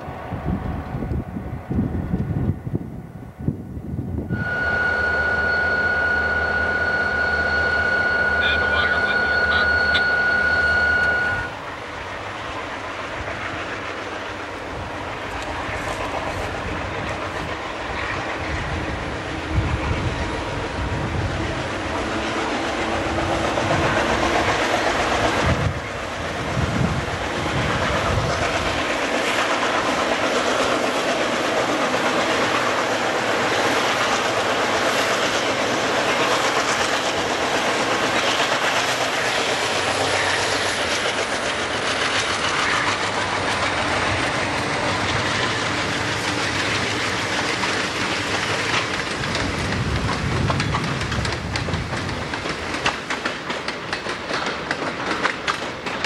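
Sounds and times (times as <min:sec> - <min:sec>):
freight train rumbling past: 0:00.0 - 0:56.0
wheels clicking over rail joints: 0:27.9 - 0:56.0.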